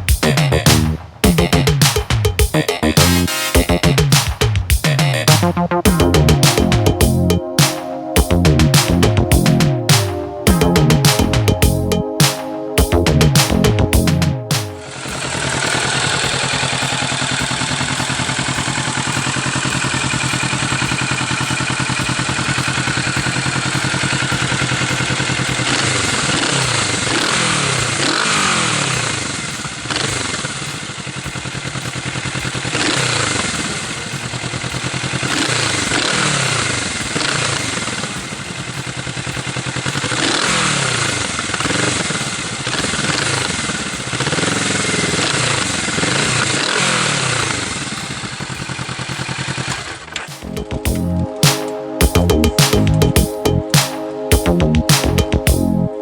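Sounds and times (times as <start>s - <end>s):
motorcycle engine revving: 14.8s - 53.0s.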